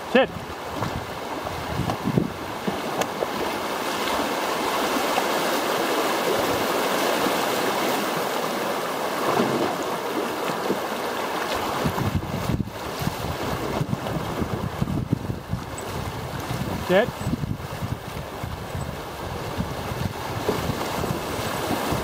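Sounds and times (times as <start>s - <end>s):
river rapids rushing: 0.0s - 11.9s, 15.7s - 17.2s.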